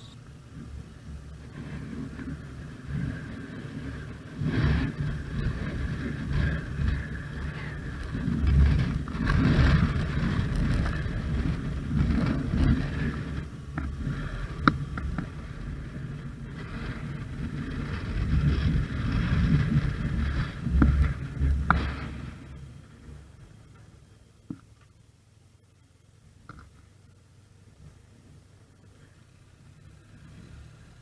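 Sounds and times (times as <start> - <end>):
motorcycle engine rumbling: 0.0 - 1.4.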